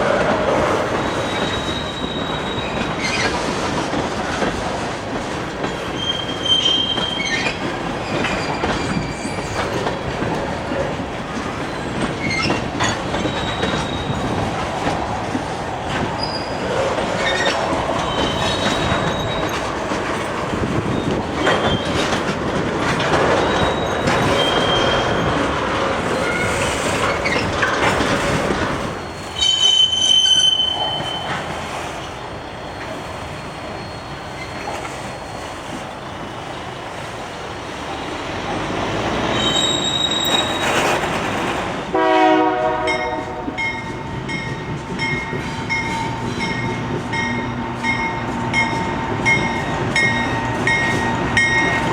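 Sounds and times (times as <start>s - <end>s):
train wheels clattering over rail: 0.0s - 32.0s, 38.2s - 51.9s
high-pitched wheel squeals: 0.9s - 3.3s, 6.0s - 9.9s, 11.7s - 14.5s, 17.2s - 22.2s, 23.2s - 25.4s, 29.0s - 31.5s, 32.4s - 35.7s, 39.2s - 41.0s.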